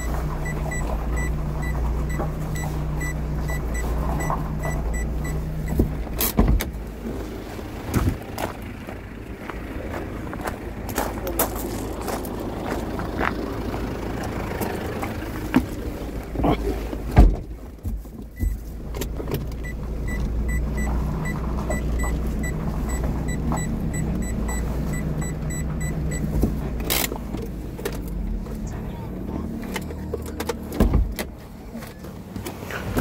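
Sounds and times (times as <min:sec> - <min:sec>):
electronic warning chime beeping: 0:00.0 - 0:05.8
vehicle engine running: 0:00.0 - 0:33.0
heavy thump: 0:17.1 - 0:18.6.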